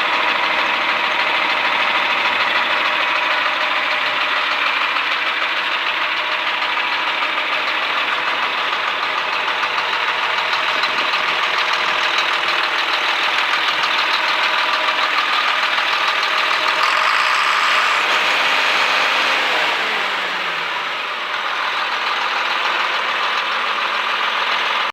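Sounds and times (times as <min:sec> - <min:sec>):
tractor diesel engine running: 0:00.0 - 0:24.9.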